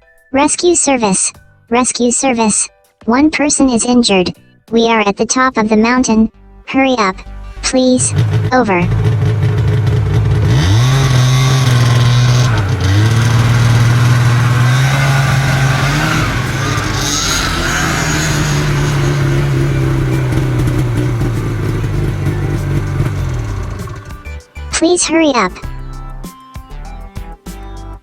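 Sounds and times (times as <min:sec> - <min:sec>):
vehicle engine revving: 0:07.9 - 0:24.4.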